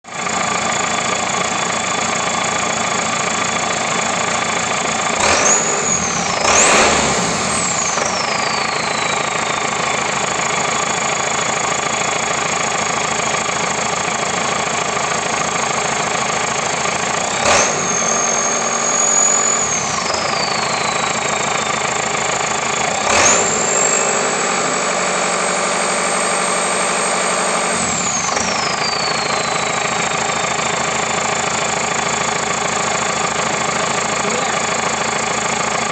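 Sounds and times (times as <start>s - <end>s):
diesel engine idling and revving: 0.0s - 35.9s.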